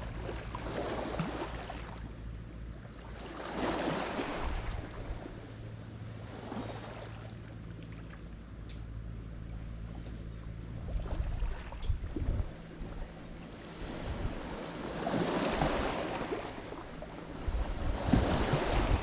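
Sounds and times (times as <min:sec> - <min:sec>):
steady low hum: 0:00.0 - 0:19.0
waves washing onto shore: 0:03.1 - 0:05.4, 0:13.7 - 0:19.0.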